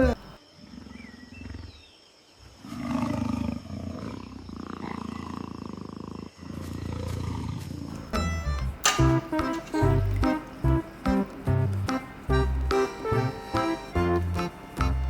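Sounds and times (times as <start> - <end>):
tiger growling and roaring: 0.0 - 13.4
music: 8.0 - 15.0.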